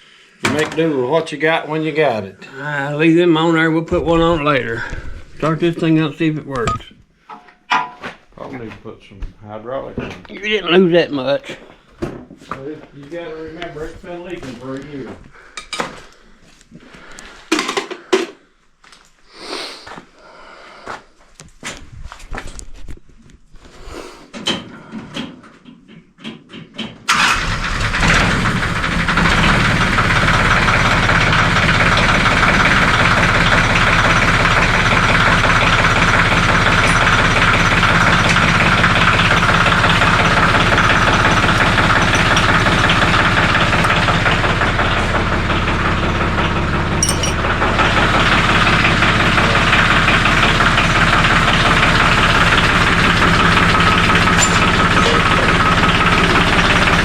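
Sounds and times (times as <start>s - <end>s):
tractor diesel engine starting: 27.1s - 57.0s.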